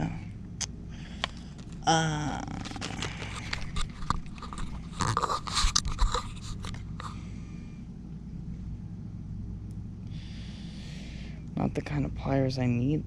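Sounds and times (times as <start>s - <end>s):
steady low hum: 0.0s - 13.0s
handling crackles and clicks: 2.6s - 7.1s.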